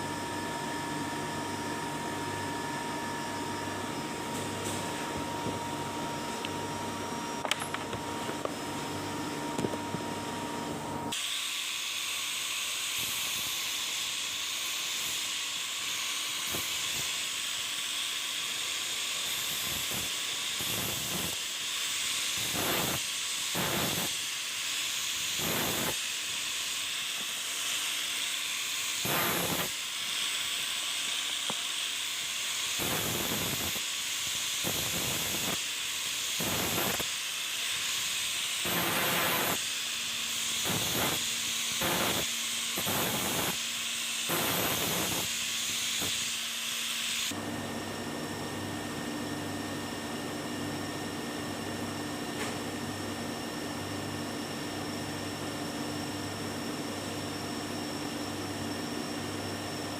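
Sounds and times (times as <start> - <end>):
steady hiss with surges: 11.6 - 47.3.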